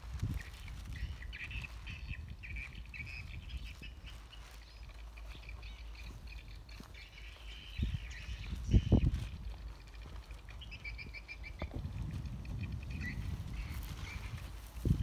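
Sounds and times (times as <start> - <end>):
birds chirping: 0.0 - 15.0
wind rumble on microphone: 0.0 - 15.0.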